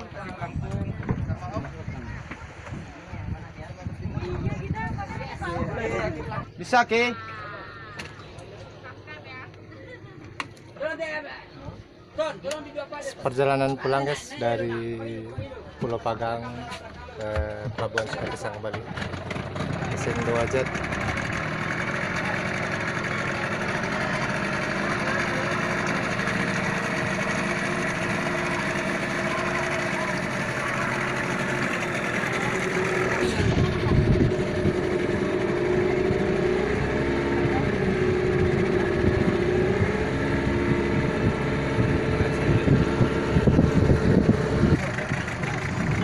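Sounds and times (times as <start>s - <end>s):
wind buffeting microphone: 0.0s - 6.6s, 33.2s - 46.0s
boat engine drone: 18.4s - 46.0s.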